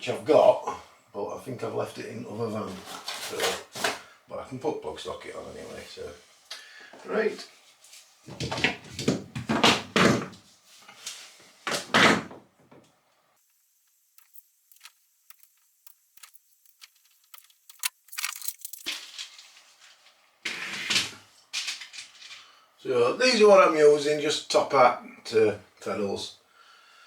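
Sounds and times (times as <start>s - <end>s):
small parts rustling and clattering: 14.0s - 22.5s.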